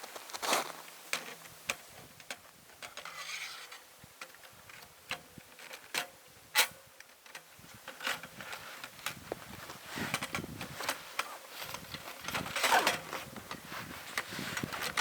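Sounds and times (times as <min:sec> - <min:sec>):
short rustle: 0:07.8 - 0:15.0.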